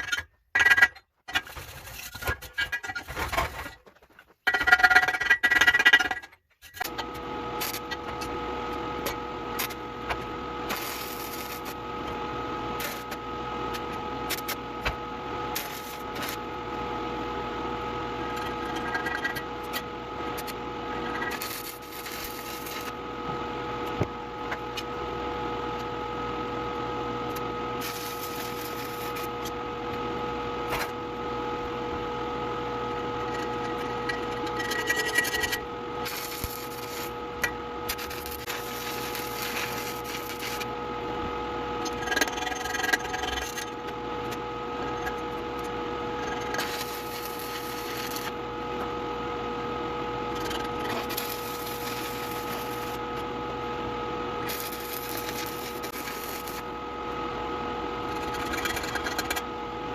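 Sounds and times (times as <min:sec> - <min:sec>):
steady hum: 0:00.0 - 0:59.9
welding arc crackling: 0:06.8 - 0:16.8, 0:18.2 - 0:23.1, 0:27.2 - 0:29.5, 0:33.2 - 0:40.8, 0:41.8 - 0:48.8, 0:50.2 - 0:53.6, 0:54.4 - 0:56.8, 0:58.0 - 0:59.4.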